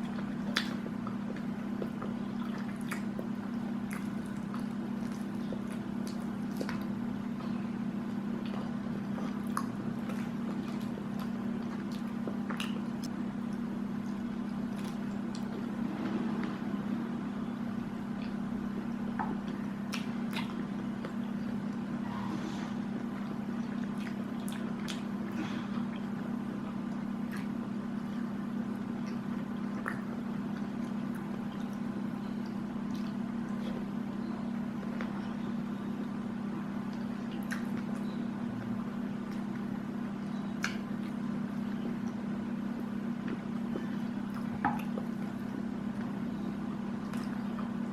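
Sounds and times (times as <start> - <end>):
wet chewing: 0.0 - 15.8, 18.1 - 22.0, 23.0 - 35.8, 36.8 - 47.9
low hum: 0.0 - 47.9
mouth clicks and smacks: 40.6 - 41.2.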